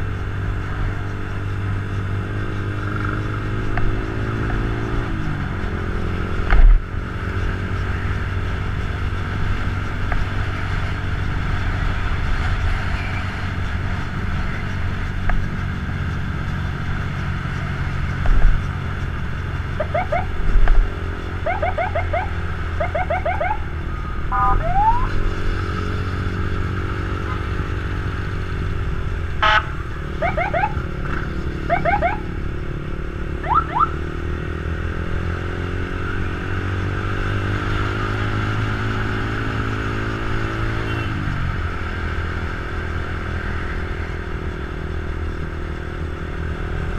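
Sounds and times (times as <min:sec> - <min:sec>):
motorcycle engine running: 0:00.0 - 0:46.9
short rising siren chirps: 0:19.8 - 0:20.4, 0:21.4 - 0:25.4, 0:29.4 - 0:30.9, 0:31.6 - 0:32.3, 0:33.4 - 0:34.1.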